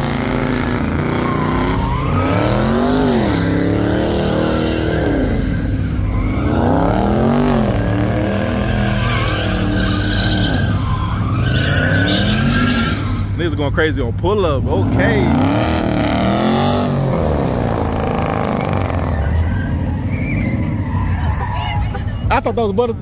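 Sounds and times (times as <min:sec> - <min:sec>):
car engine revving hard: 0:00.0 - 0:13.4, 0:14.6 - 0:20.7
tires screeching: 0:00.0 - 0:23.0.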